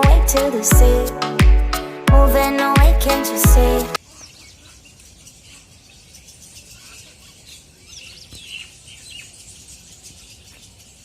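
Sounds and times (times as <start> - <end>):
small birds chirping: 4.0 - 11.0.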